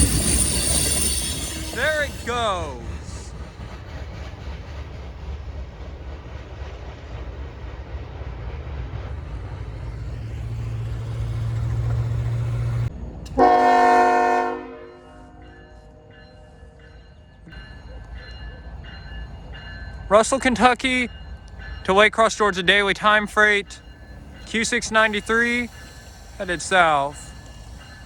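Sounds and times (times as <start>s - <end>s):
freight train rumbling: 0.0s - 28.0s
locomotive air horn blast: 13.3s - 15.4s.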